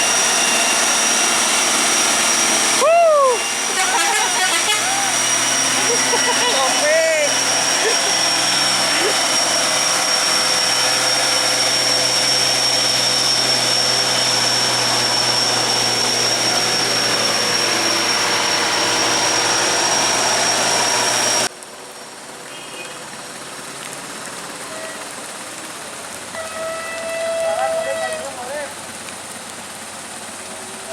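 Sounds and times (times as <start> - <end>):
heavy vehicle engine running: 0.0 - 21.5
high constant whine: 0.0 - 21.5
outdoor background noise: 0.0 - 30.9.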